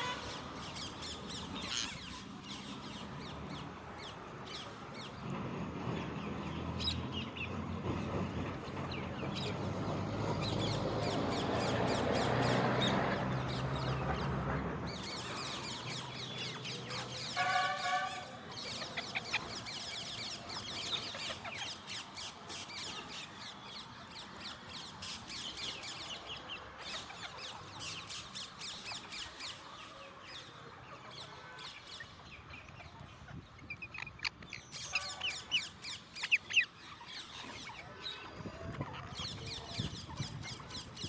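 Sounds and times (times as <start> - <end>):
parakeets chattering and squawking: 0.0 - 5.2, 14.9 - 29.6, 30.2 - 41.0.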